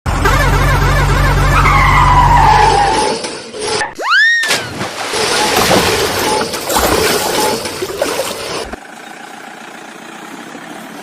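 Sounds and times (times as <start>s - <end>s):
cartoon engine running: 0.2s - 3.2s
tyre skid squeal: 0.2s - 5.6s.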